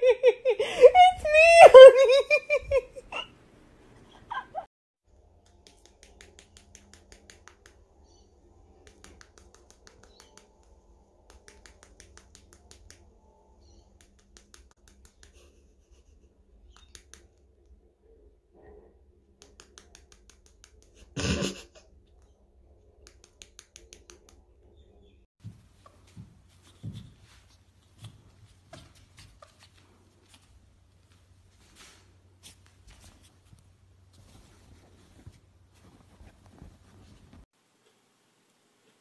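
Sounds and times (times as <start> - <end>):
bird beak tapping clicks: 11.3 - 13.0.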